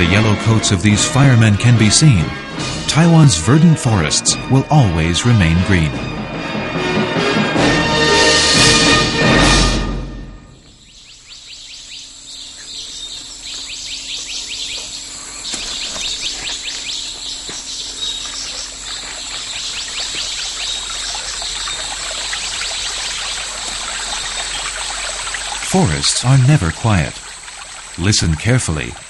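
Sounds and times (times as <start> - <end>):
birds calling: 10.5 - 29.0
insects chirping: 10.5 - 29.0
steady background hiss: 10.6 - 29.0.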